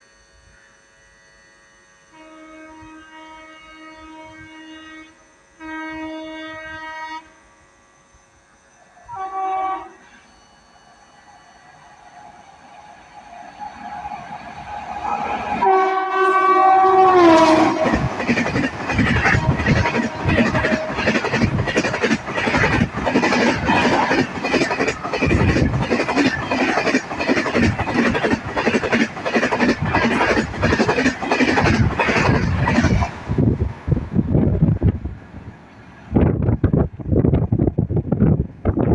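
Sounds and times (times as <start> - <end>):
locomotive horn blasts: 2.1 - 7.5, 9.0 - 10.3, 15.0 - 21.1
train passing at speed: 8.7 - 38.9
wheels clacking over rail joints: 17.2 - 33.2.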